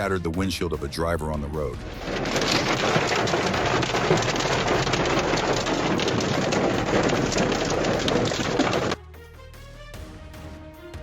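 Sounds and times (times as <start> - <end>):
hail pelting a car: 1.8 - 9.0.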